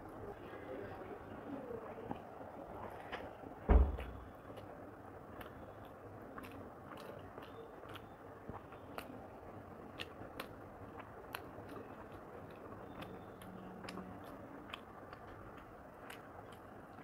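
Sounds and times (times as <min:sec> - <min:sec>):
faint chewing: 0:00.0 - 0:17.0
wet mouth clicks and smacks: 0:05.3 - 0:09.2, 0:09.8 - 0:17.0.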